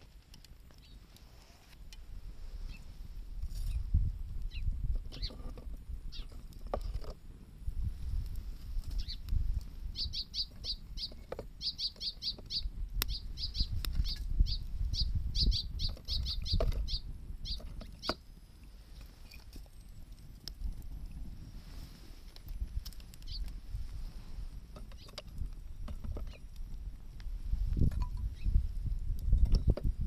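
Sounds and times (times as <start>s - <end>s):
sharp crackling pops: 0.0s - 30.0s
small bird chirping: 0.8s - 1.0s, 2.6s - 2.9s, 3.6s - 5.5s, 6.1s - 6.4s, 8.8s - 9.3s, 9.9s - 18.2s, 23.2s - 23.6s, 28.2s - 28.6s.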